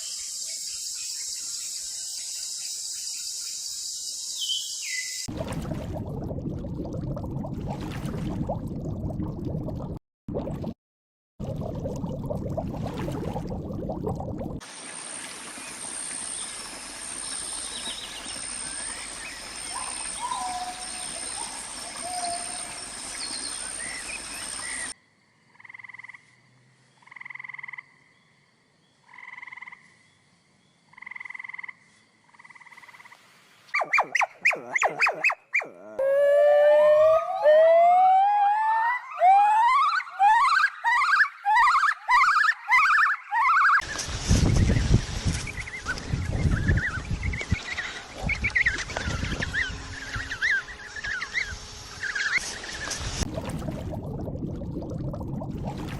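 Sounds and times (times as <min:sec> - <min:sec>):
rising whistling calls: 0:02.4 - 0:05.3
evenly spaced animal calls: 0:33.7 - 0:43.8.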